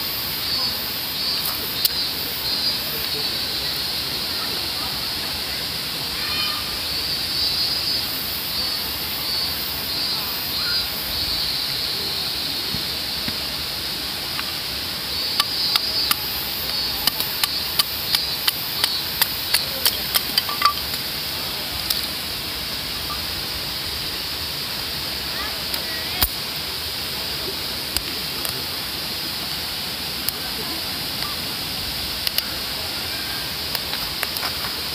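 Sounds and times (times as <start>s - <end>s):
rapid sharp clicks: 15.4s - 21.0s.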